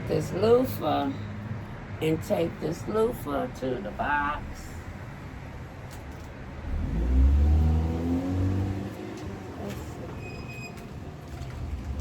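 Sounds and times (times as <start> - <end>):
car accelerating past: 6.6 - 9.6.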